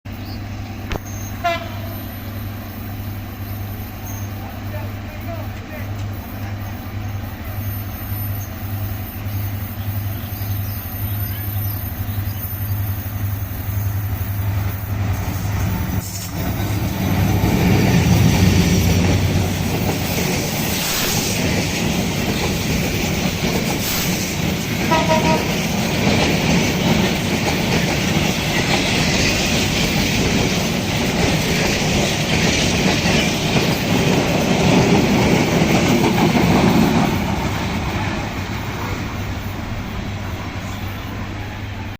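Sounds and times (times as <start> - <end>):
train horn toot: 1.3 - 2.2, 24.8 - 25.7
train wheels rumbling and clattering: 4.1 - 41.9
locomotive engine throbbing: 11.9 - 40.6.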